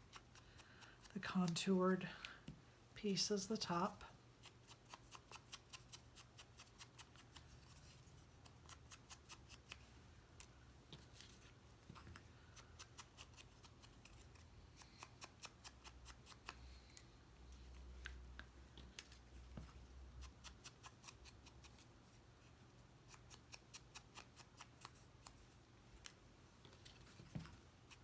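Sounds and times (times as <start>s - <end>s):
faint clicks of cardstock pieces: 16.3s - 19.8s.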